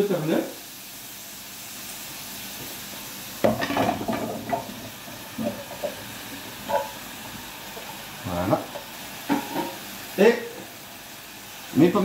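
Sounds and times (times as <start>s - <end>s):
leeks sizzling in pot: 0.0s - 12.0s
squash chunks thudding into pot: 3.4s - 6.0s.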